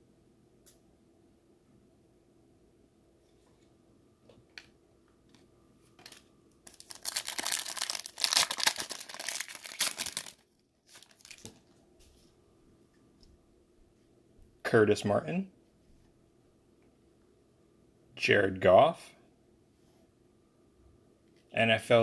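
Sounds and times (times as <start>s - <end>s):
light wrapper rustles: 5.8s - 12.3s
foil wrapper tearing and crinkling: 6.0s - 11.7s.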